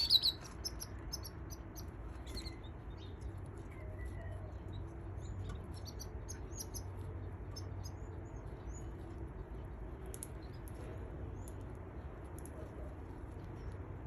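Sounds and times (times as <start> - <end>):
baby canaries cheeping: 0.0 - 14.0
low background hum: 0.0 - 14.0.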